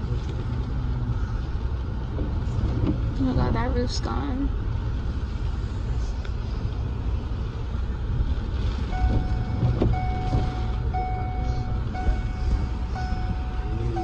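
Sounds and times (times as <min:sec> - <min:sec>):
low engine rumble: 0:00.0 - 0:14.0
reversing alarm beeping: 0:08.9 - 0:14.0.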